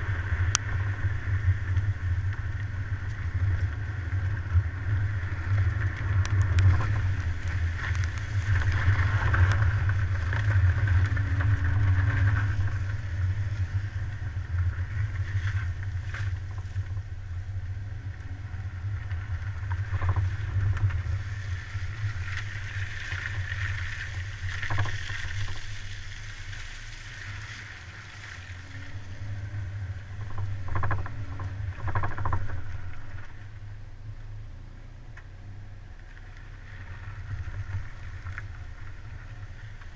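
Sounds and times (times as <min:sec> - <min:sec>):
car engine rumble: 0:00.0 - 0:39.9
road and wind noise: 0:00.0 - 0:39.9.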